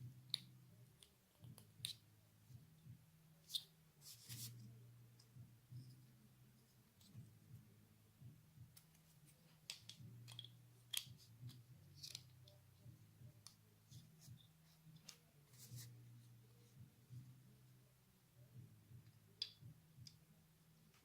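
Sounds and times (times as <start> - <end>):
low steady hum: 0.0 - 21.0
toy parts clicking together: 9.6 - 11.2.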